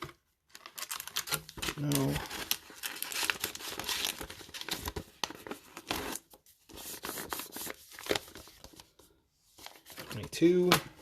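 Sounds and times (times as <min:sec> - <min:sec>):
foil packs rustling and crinkling: 0:00.5 - 0:06.3.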